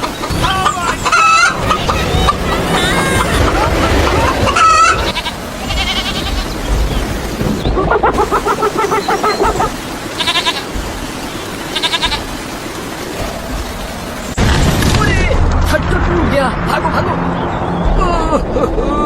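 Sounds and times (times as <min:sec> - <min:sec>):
animal bleating: 0:04.5 - 0:06.7, 0:10.2 - 0:10.8, 0:11.7 - 0:12.3.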